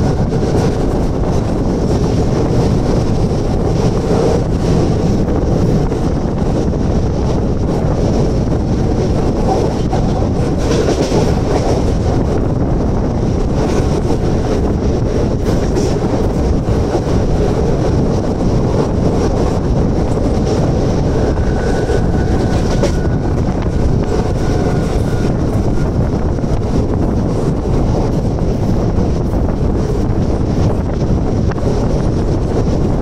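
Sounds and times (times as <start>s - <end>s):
train wheels on rails: 0.0s - 33.0s.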